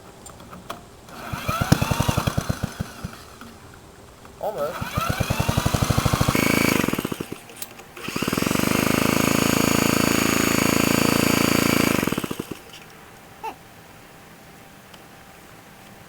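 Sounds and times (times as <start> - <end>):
small tractor engine running: 1.1 - 3.5, 4.6 - 12.7.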